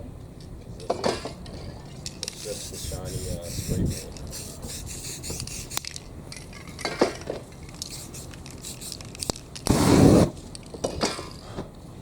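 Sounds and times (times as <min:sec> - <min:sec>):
spray rush: 0:02.4 - 0:05.8, 0:07.9 - 0:10.2.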